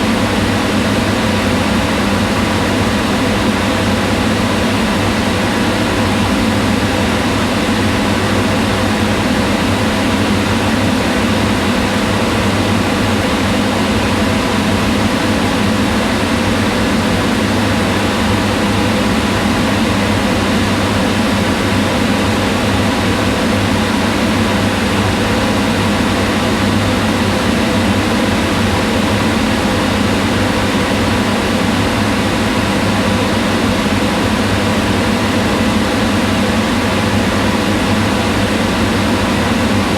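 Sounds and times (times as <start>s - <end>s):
range hood fan running: 0.0s - 39.9s.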